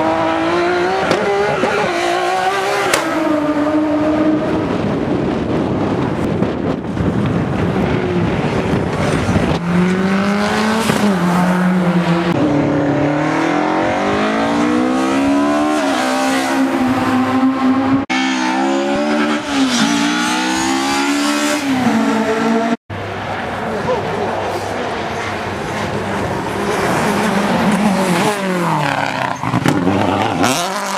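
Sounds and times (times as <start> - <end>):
wind rush on microphone: 3.2 - 15.3
rally car engine accelerating: 24.6 - 30.9.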